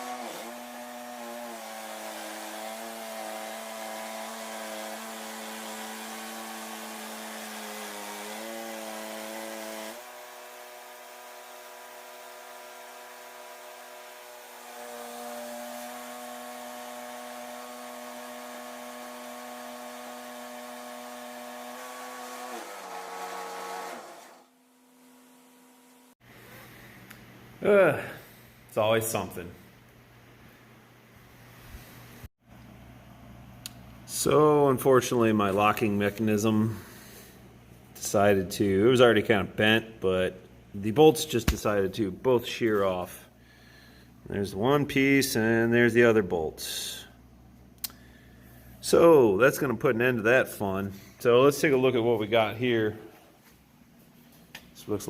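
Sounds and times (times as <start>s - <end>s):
bandsaw mill sawing wood: 0.0s - 26.2s.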